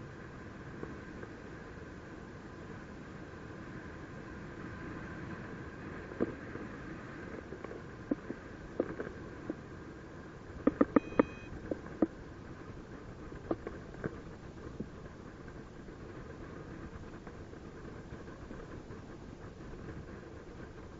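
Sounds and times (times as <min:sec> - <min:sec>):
sharp clicks: 0:10.6 - 0:12.1
short electronic beep: 0:10.7 - 0:11.6.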